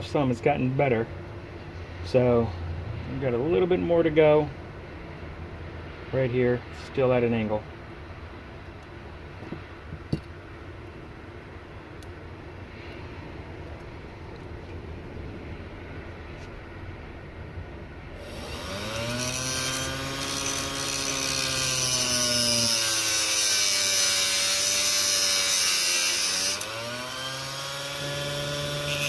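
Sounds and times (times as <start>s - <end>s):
rotary tool grinding: 18.2s - 29.0s.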